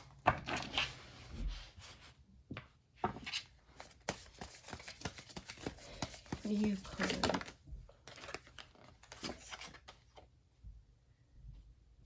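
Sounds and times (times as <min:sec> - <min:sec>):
cards shuffling and rustling: 0:03.2 - 0:10.3.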